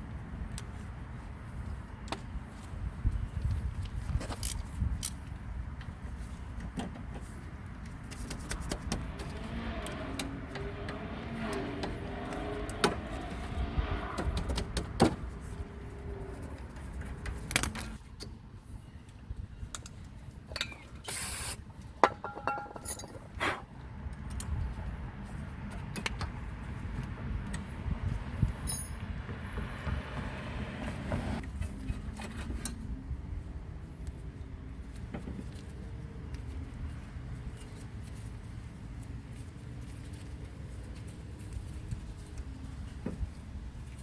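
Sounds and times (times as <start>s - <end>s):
short hiss: 21.1s - 21.6s
metallic clinks of tools: 22.3s - 23.3s, 28.6s - 29.0s.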